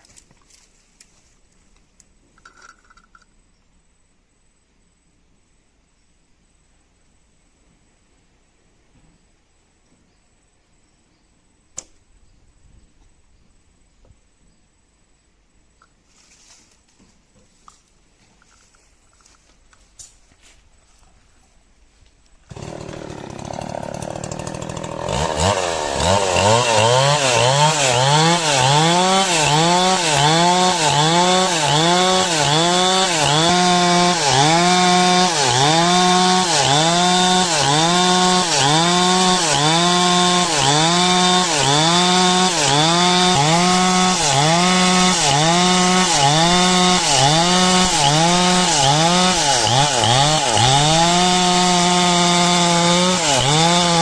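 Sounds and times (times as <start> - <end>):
chainsaw cutting wood: 22.5 - 54.0.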